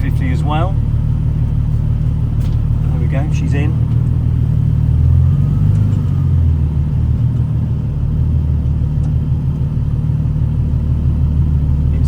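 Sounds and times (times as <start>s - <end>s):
car engine rumbling at low revs: 0.0s - 12.0s.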